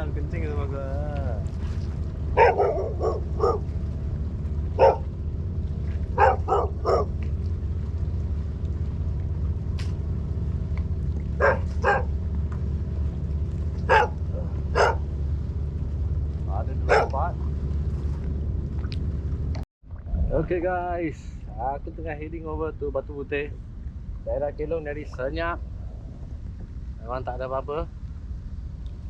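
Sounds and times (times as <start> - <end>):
steady low rumble: 0.0 - 29.0
dog barking: 2.4 - 3.7, 4.8 - 5.1, 6.2 - 7.2, 11.4 - 12.1, 13.9 - 15.1, 16.8 - 17.2.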